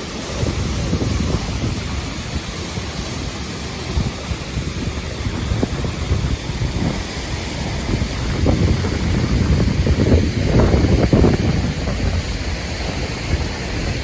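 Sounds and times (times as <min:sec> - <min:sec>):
steady rushing hiss: 0:00.0 - 0:14.0
wind buffeting microphone: 0:00.0 - 0:14.0.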